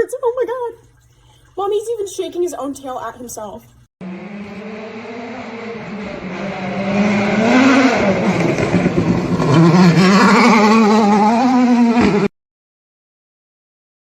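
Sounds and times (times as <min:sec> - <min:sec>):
engine revving: 0:04.0 - 0:12.3.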